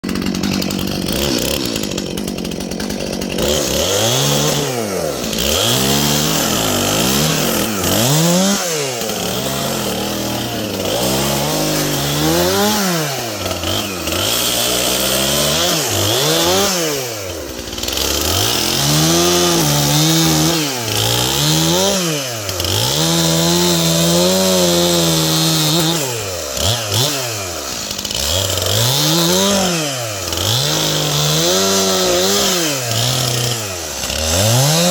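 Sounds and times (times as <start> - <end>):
chainsaw revving while cutting: 0.0 - 34.9.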